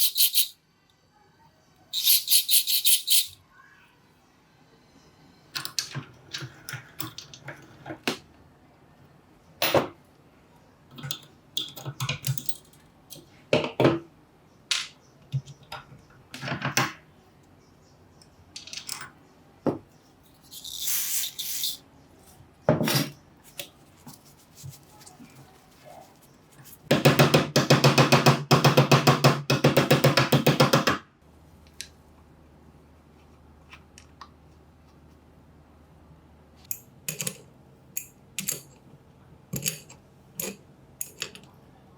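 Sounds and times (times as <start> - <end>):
metal tool parts clicking: 0.0 - 0.5, 2.0 - 3.4, 38.0 - 38.8, 39.5 - 41.5.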